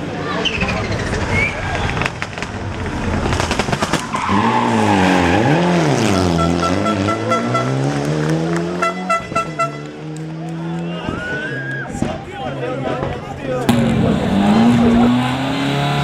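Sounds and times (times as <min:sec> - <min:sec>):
rally car engine revving: 0:03.0 - 0:10.9, 0:13.7 - 0:16.0.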